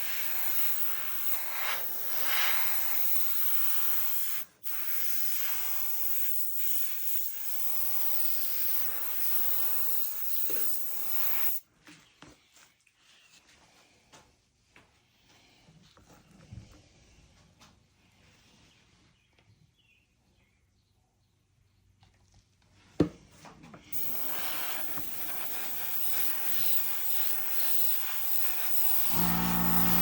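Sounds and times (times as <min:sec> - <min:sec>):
paint spray hiss: 0:00.0 - 0:11.6, 0:24.0 - 0:30.0.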